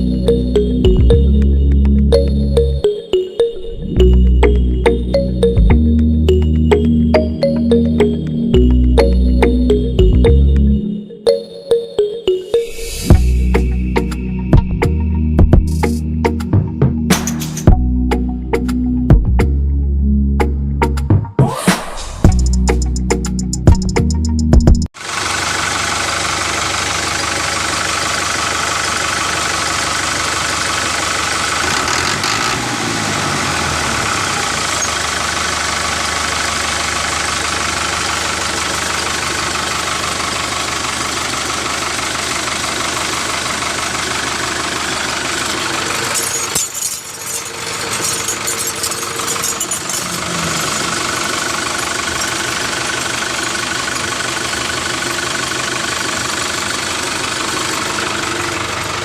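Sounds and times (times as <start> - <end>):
engine idling: 0.0 - 2.9, 24.9 - 59.0.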